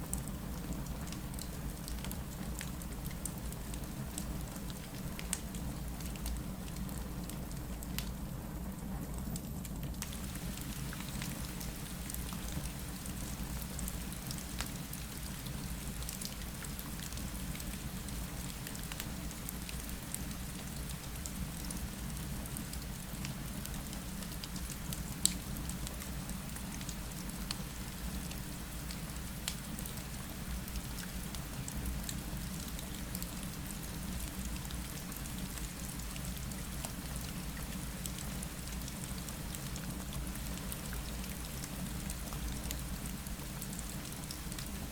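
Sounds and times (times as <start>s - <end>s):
rain against window: 10.0s - 26.5s.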